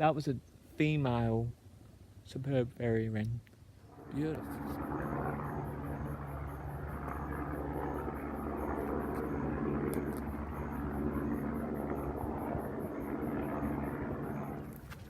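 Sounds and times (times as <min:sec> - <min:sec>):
helicopter flying: 0:03.8 - 0:15.0.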